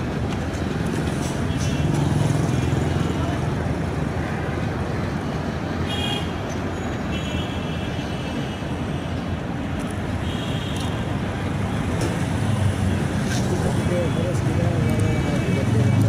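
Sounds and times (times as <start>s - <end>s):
low rumble of engines and traffic: 0.0s - 16.0s.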